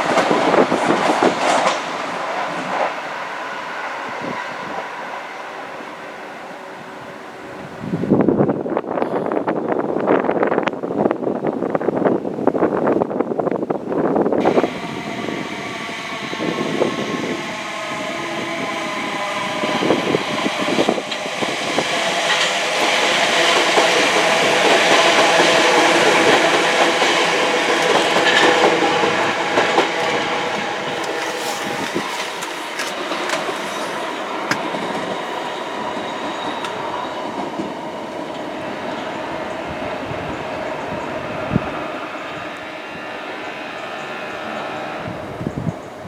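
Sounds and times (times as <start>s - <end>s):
multi-tone train whine: 0.0s - 46.0s
passenger train passing: 0.0s - 46.0s
wheels clicking over rail joints: 22.2s - 39.1s.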